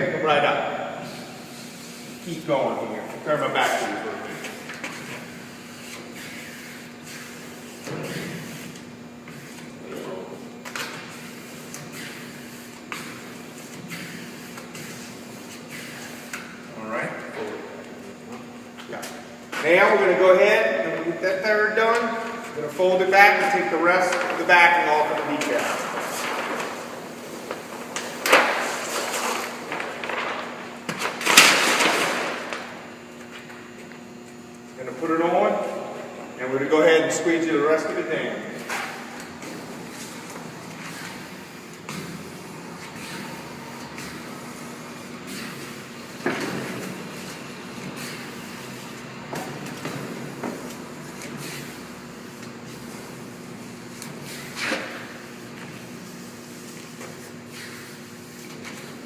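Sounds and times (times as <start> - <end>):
steady low hum: 0.0 - 59.0
paper backing rustling: 23.8 - 32.7.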